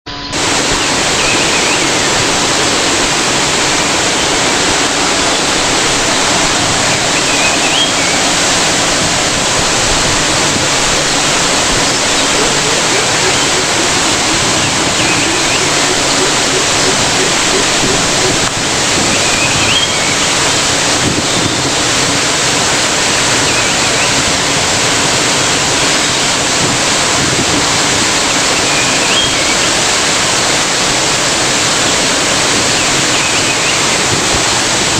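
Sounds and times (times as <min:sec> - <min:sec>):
waterfall roaring: 0:00.1 - 0:34.9
faint high chirp: 0:07.2 - 0:08.2.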